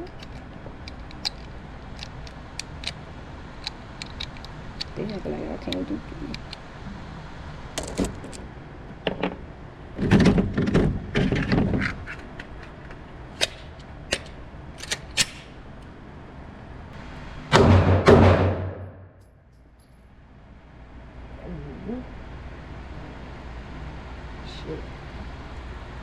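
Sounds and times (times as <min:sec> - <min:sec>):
gunshots with echo: 0:17.5 - 0:19.0.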